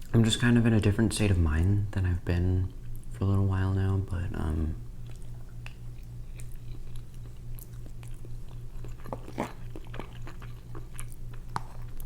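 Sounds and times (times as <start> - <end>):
steady low hum: 0.0 - 12.0
person chewing food: 4.9 - 12.0.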